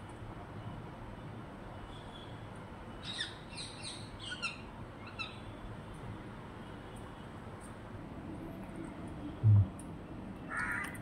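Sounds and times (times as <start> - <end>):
low background rumble: 9.4 - 9.8.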